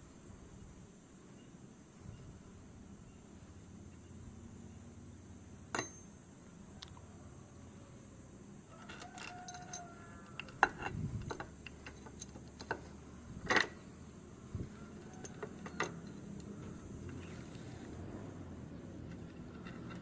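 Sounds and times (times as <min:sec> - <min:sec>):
ringing metal clink: 0:05.7 - 0:06.2, 0:08.9 - 0:10.8, 0:15.0 - 0:16.8
metallic clicks of tools: 0:08.8 - 0:12.9.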